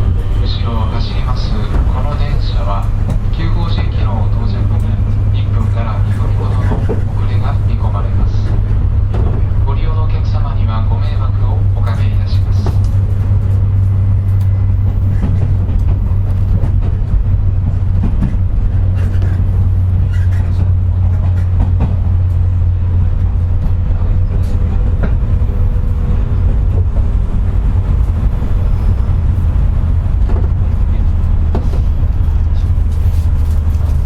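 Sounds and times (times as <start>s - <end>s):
electric train running: 10.9s - 34.0s.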